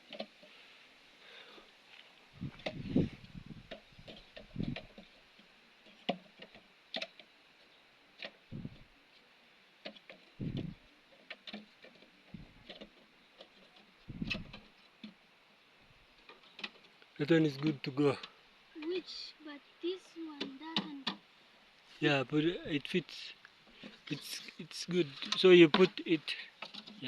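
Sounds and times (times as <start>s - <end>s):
wooden frames clicking and knocking: 2.4s - 7.3s, 9.8s - 15.2s, 16.2s - 17.0s, 20.4s - 21.2s, 23.6s - 27.0s.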